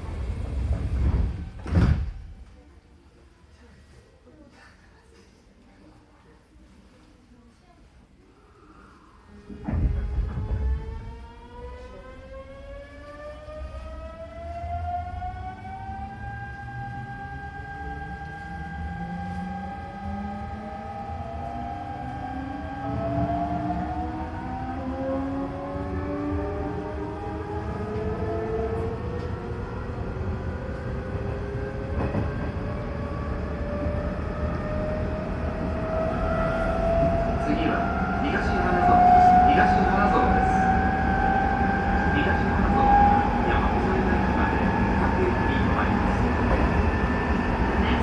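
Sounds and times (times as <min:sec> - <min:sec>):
wheels rumbling on rails: 0:00.0 - 0:01.7, 0:15.7 - 0:48.0
train running rumble: 0:00.0 - 0:02.2
train inverter whining: 0:09.6 - 0:48.0.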